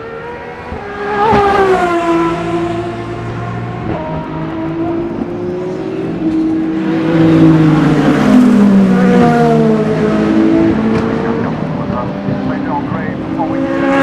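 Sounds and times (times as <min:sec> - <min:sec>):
race car engines passing: 0:00.0 - 0:14.0.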